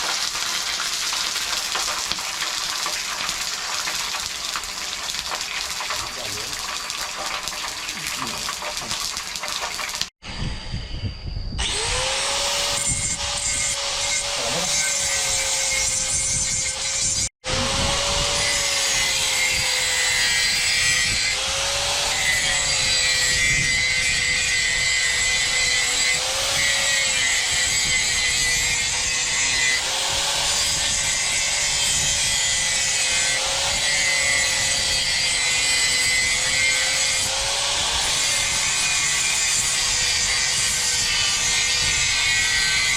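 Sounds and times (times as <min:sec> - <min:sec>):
power tool cutting: 0:11.6 - 0:42.9.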